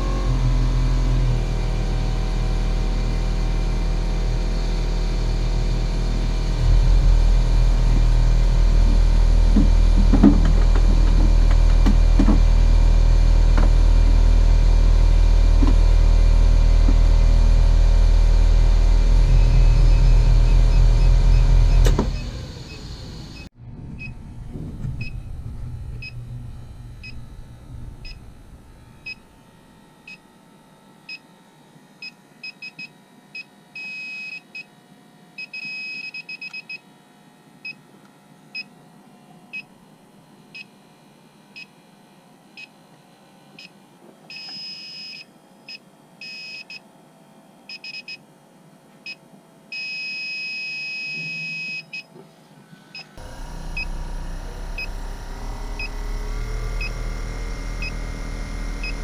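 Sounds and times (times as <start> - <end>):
low rumble: 1.4 - 29.9, 53.2 - 59.0.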